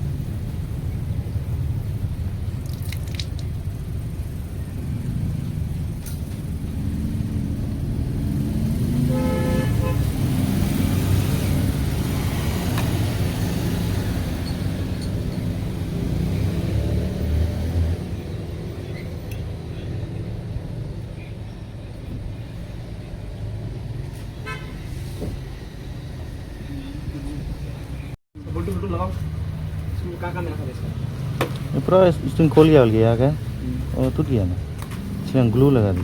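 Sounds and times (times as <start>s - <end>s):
road traffic rumbling: 0.0s - 36.0s
vehicle horn: 9.0s - 10.2s, 24.4s - 24.9s.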